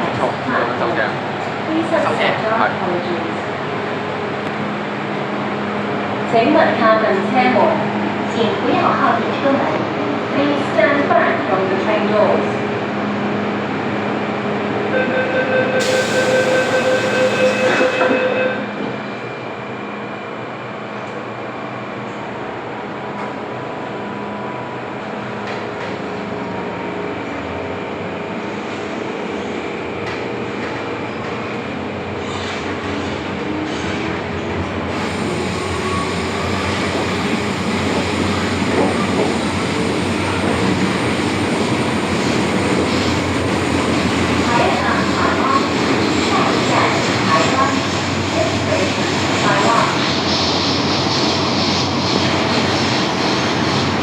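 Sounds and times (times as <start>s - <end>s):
train hum: 0.0s - 54.0s
door-closing warning tone: 15.0s - 18.7s
hiss of doors: 15.8s - 18.0s.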